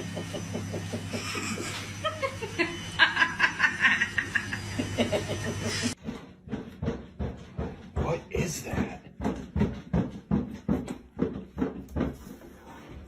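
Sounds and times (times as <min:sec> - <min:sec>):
person laughing and snickering: 0:00.0 - 0:06.0.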